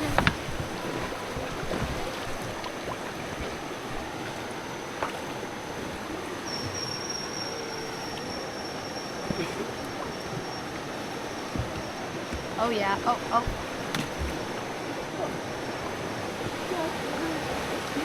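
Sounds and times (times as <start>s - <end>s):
river water rushing: 0.0s - 18.0s
faint knocks: 11.3s - 14.7s.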